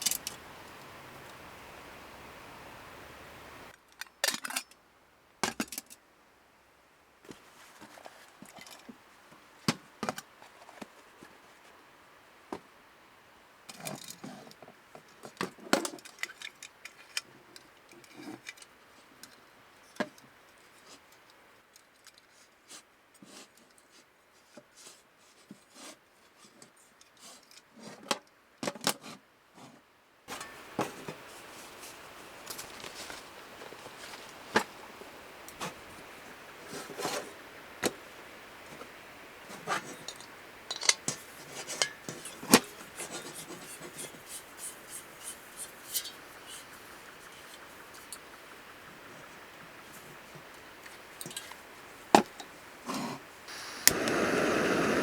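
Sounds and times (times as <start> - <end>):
steady hiss: 0.0 - 3.8, 30.3 - 55.0.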